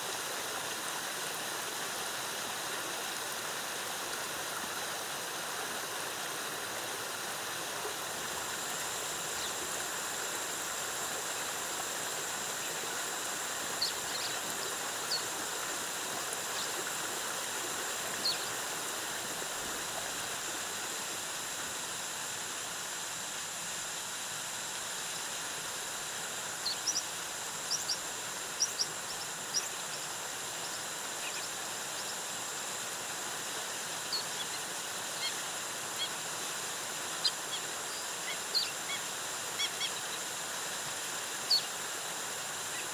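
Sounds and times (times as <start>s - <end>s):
constant high thin tone: 6.7s - 22.0s.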